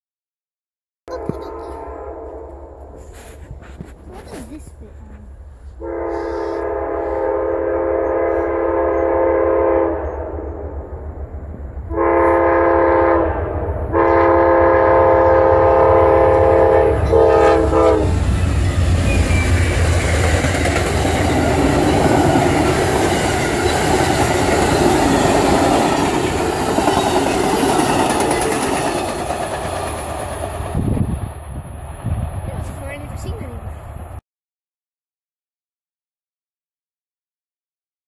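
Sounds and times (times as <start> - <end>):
train horn chord: 1.1 - 3.3, 5.8 - 10.7, 11.9 - 19.2
train engine rumble: 1.1 - 34.2
wheels clattering over rail joints: 18.2 - 30.9.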